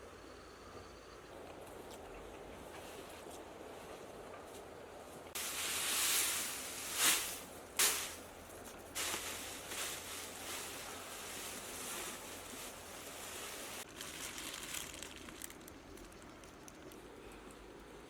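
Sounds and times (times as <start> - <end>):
rustling and handling noises: 2.6 - 17.0
short sharp crackles: 6.2 - 8.2.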